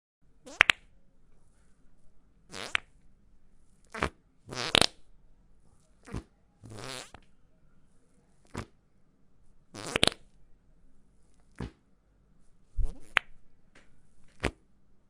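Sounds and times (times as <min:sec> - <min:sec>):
fart sound effects: 0:00.5 - 0:00.8, 0:02.5 - 0:02.9, 0:03.9 - 0:05.0, 0:06.0 - 0:07.2, 0:08.5 - 0:08.7, 0:09.8 - 0:10.2, 0:12.8 - 0:13.3.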